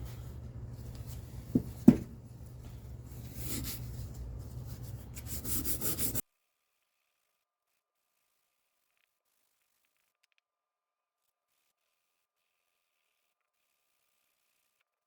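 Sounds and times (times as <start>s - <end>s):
hand scrubbing: 0.0s - 6.2s
steady low hum: 0.0s - 6.2s
sharp knocks: 1.5s - 2.2s.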